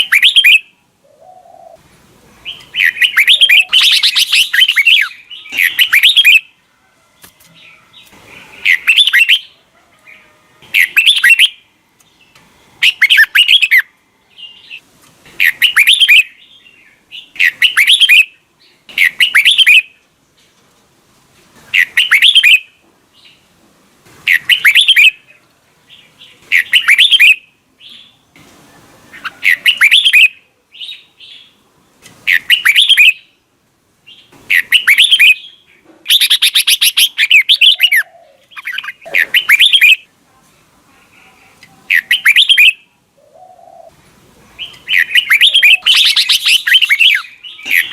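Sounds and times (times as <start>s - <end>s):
bulbul singing: 0.0s - 1.8s, 2.4s - 6.6s, 7.6s - 9.6s, 10.6s - 14.8s, 15.4s - 20.0s, 21.8s - 23.4s, 24.3s - 28.2s, 29.1s - 31.6s, 32.3s - 33.4s, 34.1s - 40.1s, 41.8s - 44.0s, 44.6s - 47.9s.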